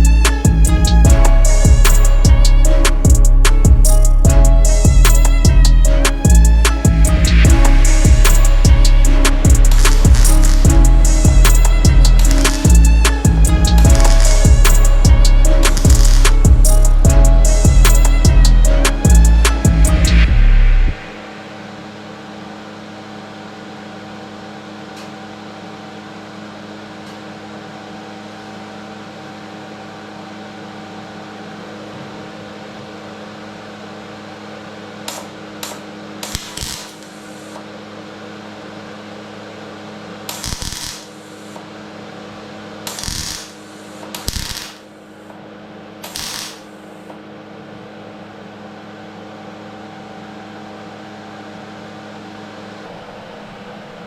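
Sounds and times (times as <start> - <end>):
electrical hum: 0.0 - 54.0
welding arc crackle: 7.5 - 13.3, 15.6 - 17.0, 35.1 - 37.6, 40.3 - 41.6, 42.9 - 45.0, 46.0 - 47.1.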